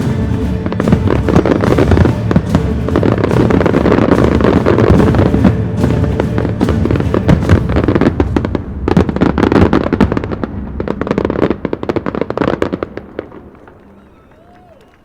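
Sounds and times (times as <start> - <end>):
fireworks bangs and crackles: 0.0 - 14.6.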